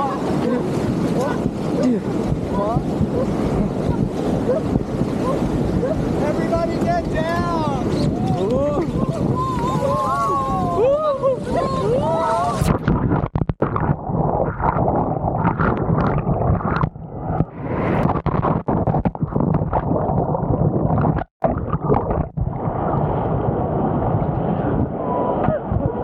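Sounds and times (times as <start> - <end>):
whitewater churning and gurgling: 0.0 - 26.0.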